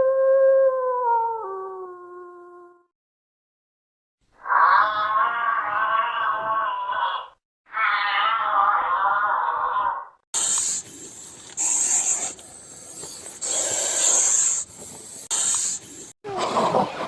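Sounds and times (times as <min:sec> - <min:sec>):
animal hissing: 0:10.4 - 0:16.2.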